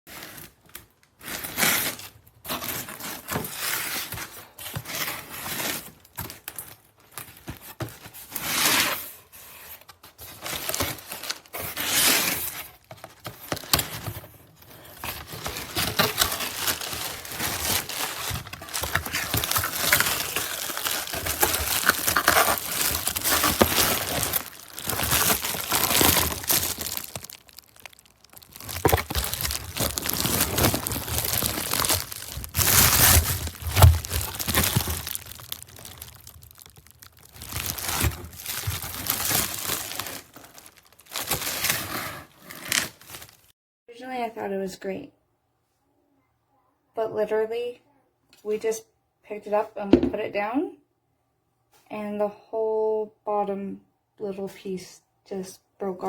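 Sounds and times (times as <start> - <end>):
crinkling and rustling: 0.1 - 43.5.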